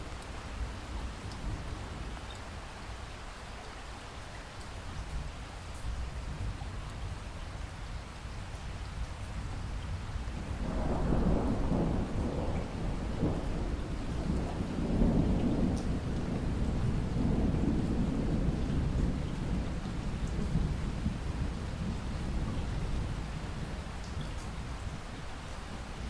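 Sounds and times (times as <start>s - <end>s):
steady rain: 0.0s - 26.0s
thunder rolling: 10.6s - 23.5s.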